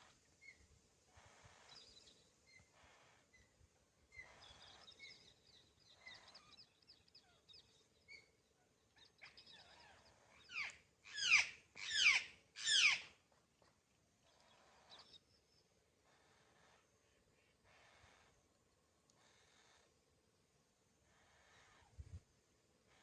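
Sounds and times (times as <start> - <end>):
faint bird twittering: 0.0 - 20.0, 21.0 - 22.3
loud downward-sweeping bird calls: 9.2 - 13.2.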